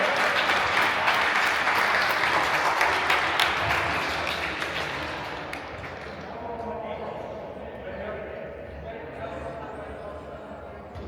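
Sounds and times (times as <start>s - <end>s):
spectators applauding: 0.0s - 6.1s.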